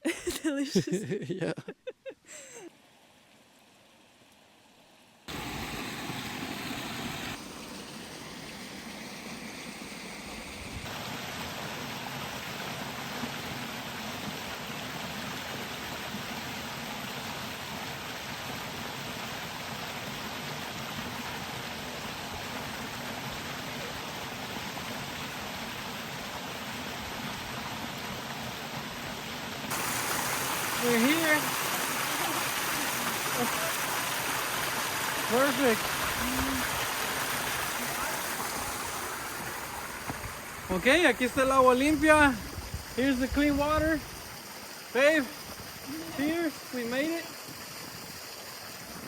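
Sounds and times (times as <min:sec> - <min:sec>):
water running in a stream: 0:00.0 - 0:49.0.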